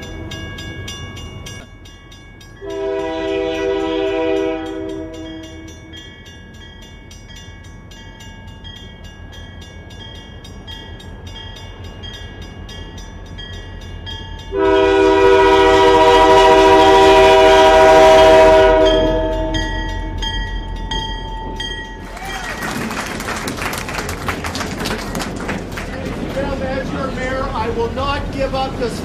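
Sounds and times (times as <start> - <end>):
train air horn blast: 2.6 - 5.7, 14.5 - 19.8.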